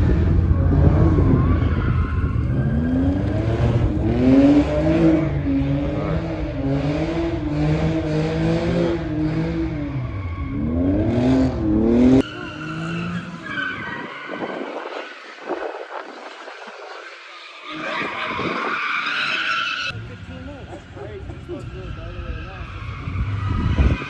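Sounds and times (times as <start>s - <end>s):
car engine revving: 0.0s - 13.8s.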